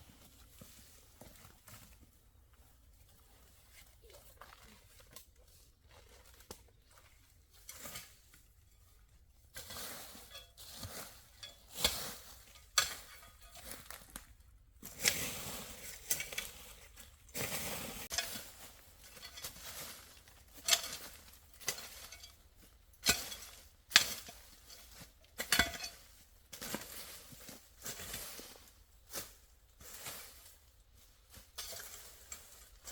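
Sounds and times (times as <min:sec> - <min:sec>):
rustling: 0:06.0 - 0:32.9
objects clinking and knocking: 0:20.6 - 0:22.4.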